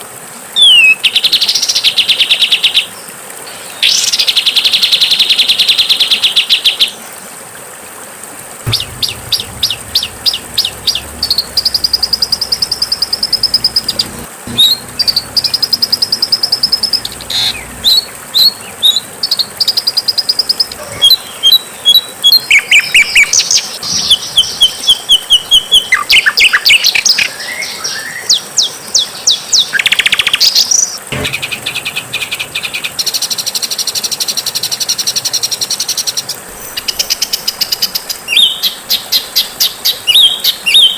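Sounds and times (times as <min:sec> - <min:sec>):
songbird chirps and trills: 0:08.7 - 0:28.2.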